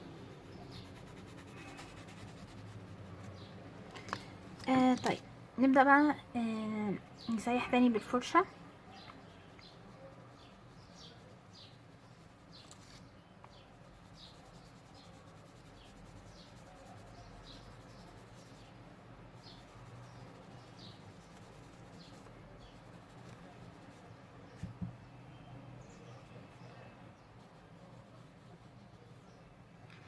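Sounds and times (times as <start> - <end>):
small bird chirping: 0.0 - 5.2, 6.9 - 29.5
soft thumps: 24.6 - 25.0.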